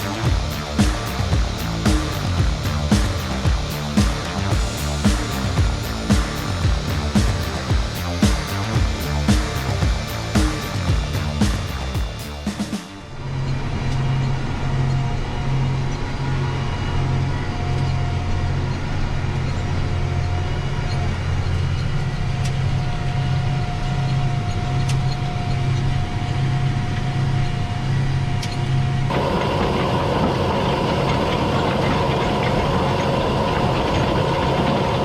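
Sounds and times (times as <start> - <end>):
tractor engine running: 0.0 - 13.1, 29.1 - 35.0
faint steady whine: 0.0 - 13.2, 29.1 - 35.0.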